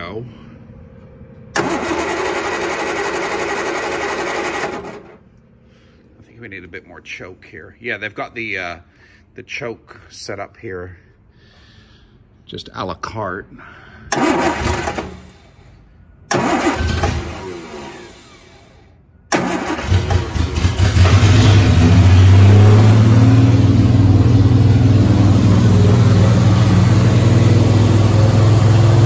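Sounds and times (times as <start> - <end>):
car engine starting and idling: 1.4 - 5.4, 14.1 - 29.0.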